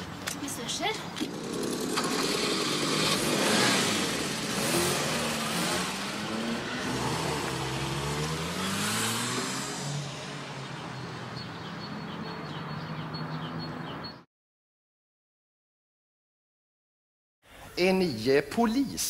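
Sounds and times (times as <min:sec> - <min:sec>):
vehicle engine revving: 0:01.2 - 0:14.0.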